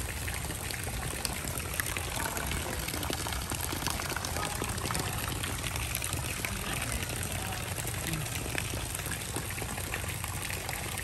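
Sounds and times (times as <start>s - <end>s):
rain falling on puddles and mud: 0.0s - 11.0s.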